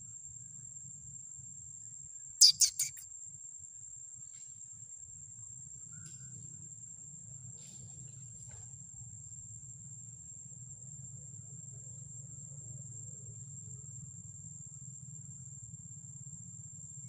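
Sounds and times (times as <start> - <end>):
bird sharp chirps: 2.4 - 3.0
high-pitched insect drone: 2.4 - 3.1.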